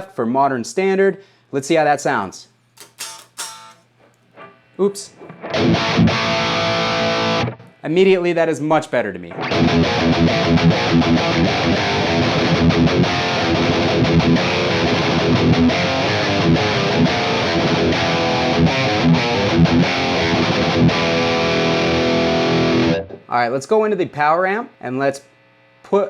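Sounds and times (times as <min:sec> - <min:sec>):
distorted electric guitar riff: 0:02.8 - 0:03.8, 0:04.4 - 0:08.5, 0:09.3 - 0:23.3.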